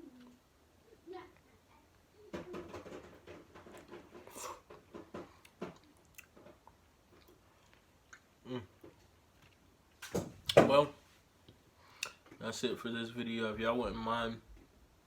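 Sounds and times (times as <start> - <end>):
person chewing food: 3.7 - 10.1.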